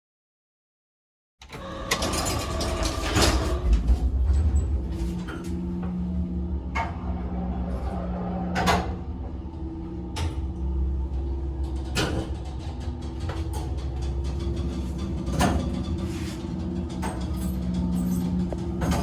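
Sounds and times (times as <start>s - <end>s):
elevator machinery humming: 1.4s - 19.0s.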